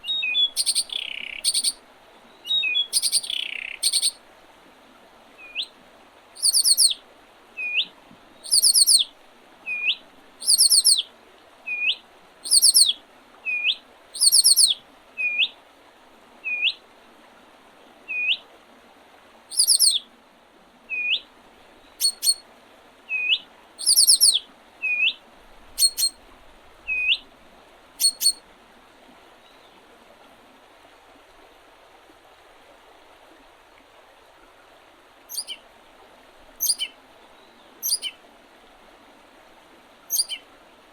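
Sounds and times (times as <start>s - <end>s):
high trilled bird phrases: 0.0s - 1.8s, 2.5s - 4.2s, 6.4s - 7.0s, 8.5s - 9.0s, 10.4s - 11.0s, 12.5s - 12.9s, 14.2s - 15.4s, 19.5s - 20.0s, 22.0s - 22.4s, 23.2s - 25.1s, 25.8s - 26.2s, 28.0s - 28.4s, 35.3s - 35.6s, 36.6s - 36.9s, 37.8s - 38.1s, 40.1s - 40.4s
short upswept bird call: 0.0s - 1.8s, 2.4s - 4.2s, 5.4s - 5.7s, 6.4s - 7.0s, 7.6s - 9.1s, 9.7s - 11.0s, 11.7s - 15.5s, 19.5s - 20.0s, 22.0s - 22.4s, 23.1s - 26.2s, 26.9s - 27.2s, 28.0s - 28.4s, 35.3s - 35.6s, 36.6s - 37.0s, 37.8s - 38.2s, 40.1s - 40.4s
faint hiss: 0.0s - 40.9s.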